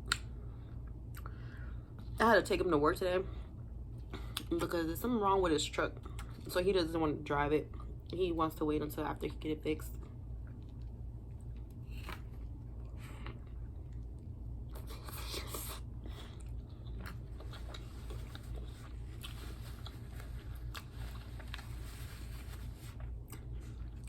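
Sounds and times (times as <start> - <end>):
steady low hum: 0.0 - 24.0
crunching bites and chewing: 10.4 - 21.8.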